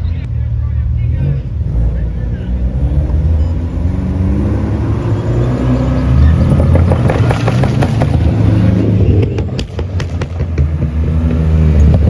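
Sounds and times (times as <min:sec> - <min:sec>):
car engine revving: 0:01.0 - 0:12.0
exhaust pops crackling: 0:06.4 - 0:12.0.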